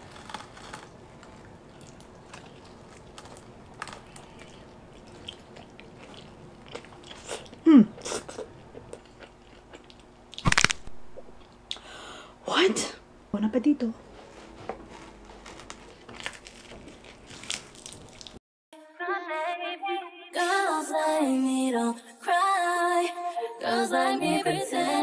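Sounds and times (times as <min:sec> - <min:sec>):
crunchy pizza crust chewing: 0:00.0 - 0:10.7, 0:14.9 - 0:18.4.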